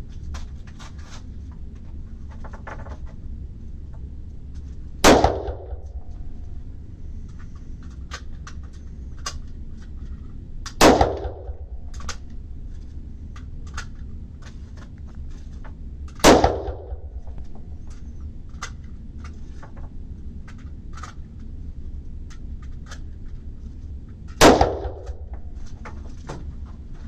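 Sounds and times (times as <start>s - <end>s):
gunshots with ringing echo: 5.0s - 6.4s, 10.8s - 12.3s, 16.2s - 17.8s, 24.4s - 25.3s.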